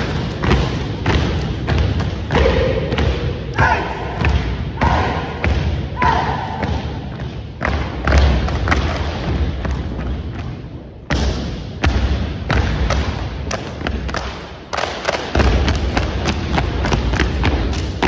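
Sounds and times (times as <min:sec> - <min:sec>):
foot stomps: 0:00.0 - 0:18.0
claps and body slaps: 0:12.5 - 0:18.0.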